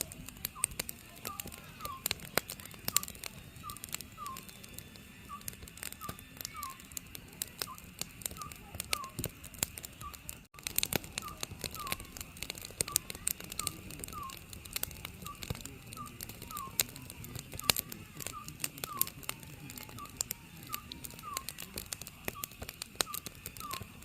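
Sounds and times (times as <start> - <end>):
wood fire crackling: 0.0 - 24.0
owl hooting: 0.5 - 4.6, 5.2 - 7.0, 7.6 - 9.2, 11.1 - 12.2, 12.8 - 14.5, 15.2 - 24.0.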